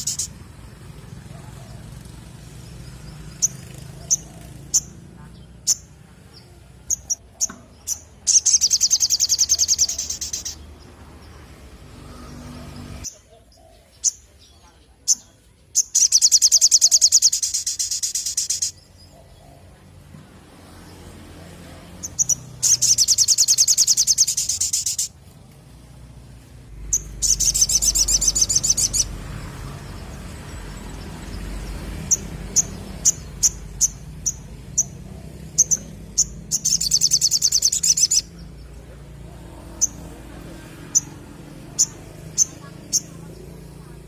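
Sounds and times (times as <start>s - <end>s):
bird trilling: 0.0s - 0.4s, 6.9s - 10.6s, 15.8s - 19.7s, 22.0s - 25.2s, 26.9s - 29.2s, 30.9s - 38.5s, 40.8s - 43.4s
sharp high bird chips: 0.0s - 0.4s, 6.9s - 10.6s, 15.8s - 18.9s, 22.0s - 25.2s, 26.8s - 29.2s, 32.0s - 38.4s.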